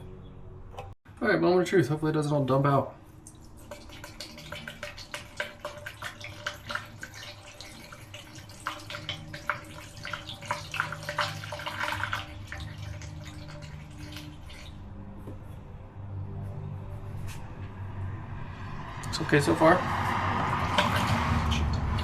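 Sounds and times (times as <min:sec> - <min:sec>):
liquid pouring into metal tank: 0:03.2 - 0:14.8, 0:20.6 - 0:22.0.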